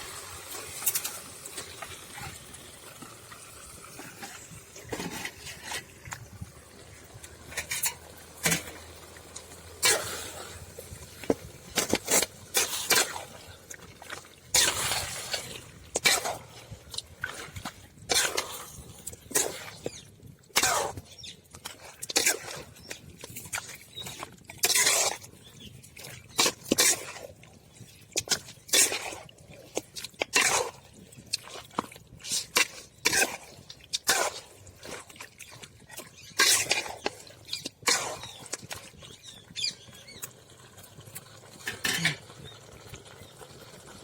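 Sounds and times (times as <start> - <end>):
spoon knocking and scraping a pan: 7.3 - 10.0.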